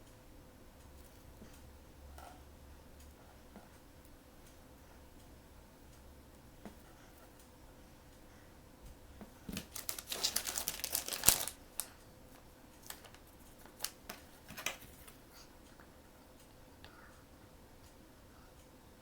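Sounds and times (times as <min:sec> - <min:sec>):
plastic packaging crinkling: 0:09.5 - 0:11.9, 0:12.8 - 0:15.0.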